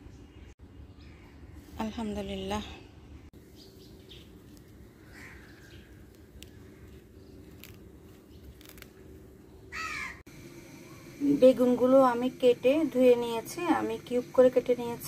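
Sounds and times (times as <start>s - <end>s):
steady low hum: 0.0s - 15.0s
bird calls: 3.4s - 8.8s.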